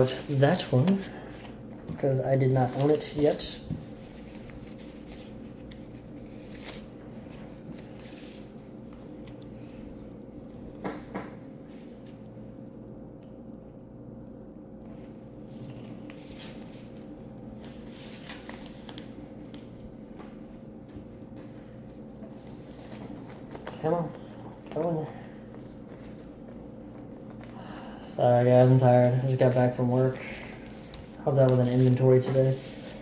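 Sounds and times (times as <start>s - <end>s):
paper and card rustling: 0.0s - 9.8s, 15.5s - 19.7s, 22.3s - 27.6s, 28.5s - 33.0s
steady low hum: 0.0s - 33.0s.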